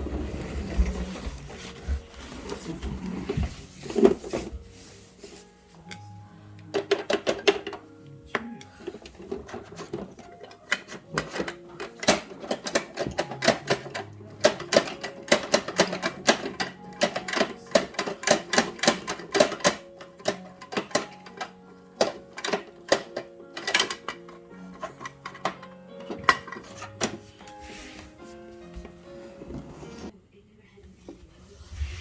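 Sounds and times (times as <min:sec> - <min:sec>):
background music: 0:00.0 - 0:30.2
plastic toy parts clicking: 0:08.8 - 0:27.2.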